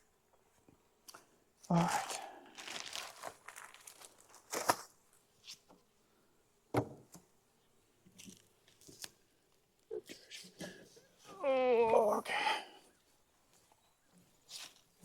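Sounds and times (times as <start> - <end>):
rustling and crinkling handling: 1.9 - 5.7.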